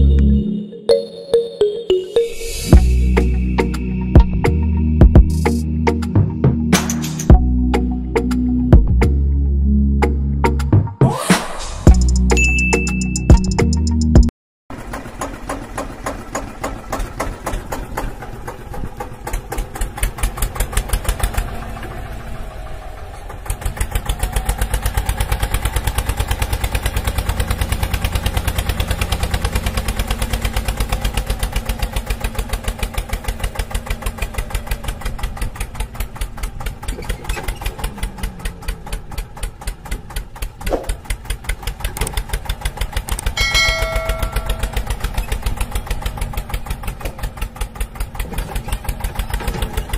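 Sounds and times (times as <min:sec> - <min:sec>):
short chime: 0:12.3 - 0:13.5, 0:43.4 - 0:44.9.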